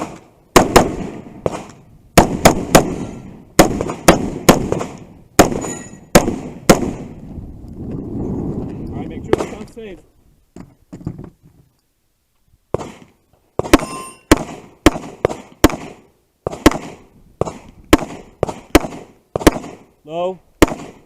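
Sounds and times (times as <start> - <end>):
gunshots: 0.0 - 7.2, 9.3 - 9.6, 12.7 - 19.9, 20.6 - 21.0
short metallic ring: 5.6 - 6.1, 13.8 - 14.3.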